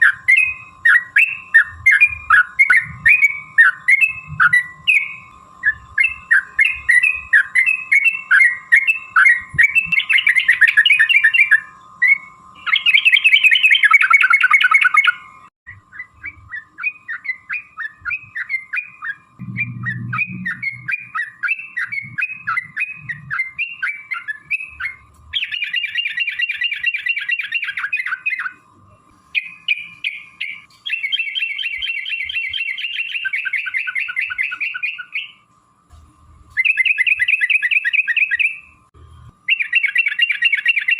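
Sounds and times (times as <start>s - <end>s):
bulbul singing with trills: 0.0s - 35.5s, 36.5s - 40.9s
faint high hum: 0.0s - 40.9s.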